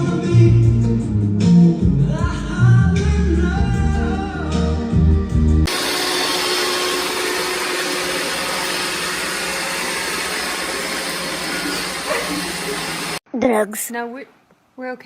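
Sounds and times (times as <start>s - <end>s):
music: 0.0s - 5.7s.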